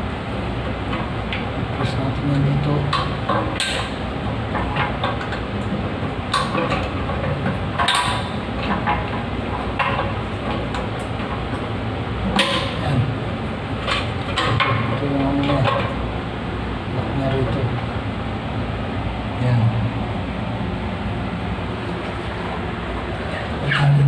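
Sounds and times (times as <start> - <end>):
steady background noise: 0.0 - 24.0
hand tools clicking and knocking: 4.5 - 11.6.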